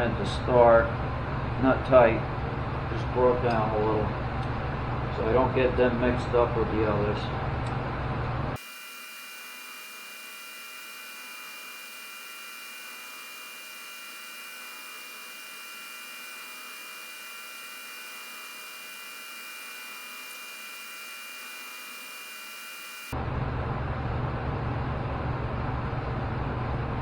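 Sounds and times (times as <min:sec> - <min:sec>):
electrical hum and hiss: 0:08.5 - 0:23.1.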